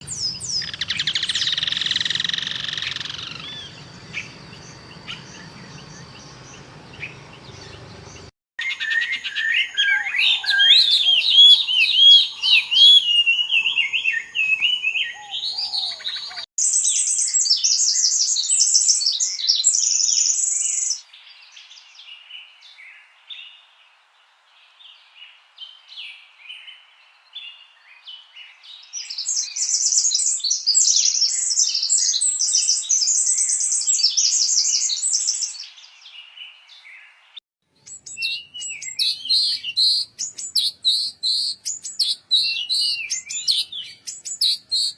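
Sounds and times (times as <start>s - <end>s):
songbirds chirping and singing: 0.0s - 16.5s, 31.0s - 44.9s.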